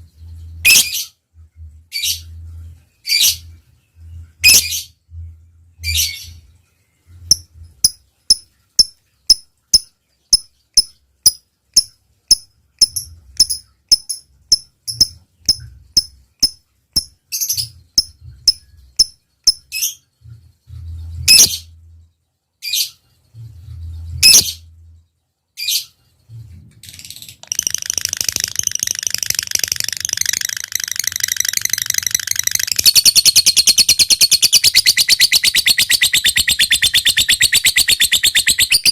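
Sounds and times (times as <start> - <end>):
lovebird chirping and chattering: 0.4 - 1.1, 4.4 - 4.9, 7.2 - 20.0, 20.7 - 21.7, 24.2 - 24.6, 27.0 - 38.9.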